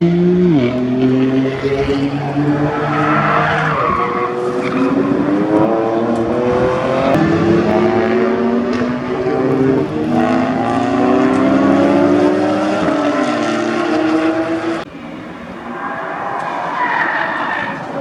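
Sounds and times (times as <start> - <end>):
race car engine revving: 0.0 - 18.0
tyres squealing: 1.2 - 5.7, 14.9 - 18.0.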